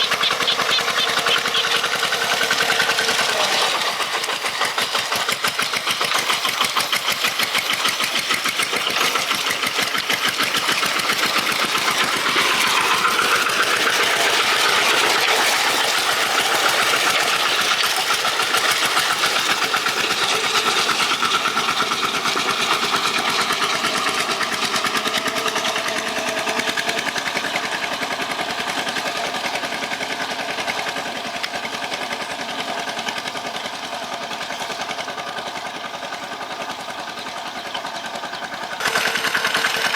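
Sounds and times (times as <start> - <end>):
tractor engine knocking: 0.0 - 39.9.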